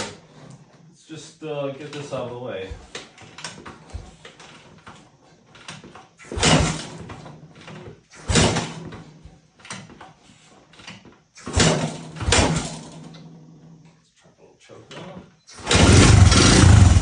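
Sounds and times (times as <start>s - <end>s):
motorbike being kick-started: 1.8s - 13.2s, 15.0s - 17.0s.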